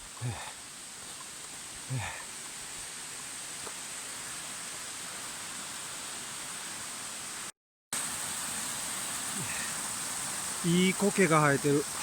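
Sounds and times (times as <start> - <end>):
waterfall rushing: 8.0 - 12.0.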